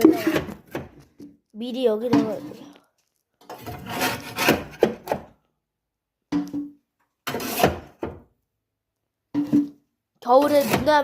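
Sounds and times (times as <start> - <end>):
paper and firewood scraping: 10.2 - 11.0.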